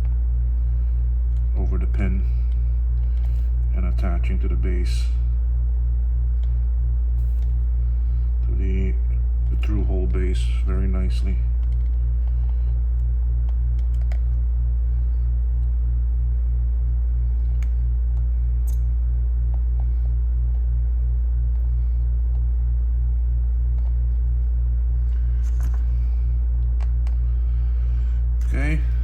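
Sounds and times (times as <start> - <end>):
low electrical hum: 0.0 - 29.0
faint clicks and taps: 11.5 - 14.4, 16.9 - 20.7.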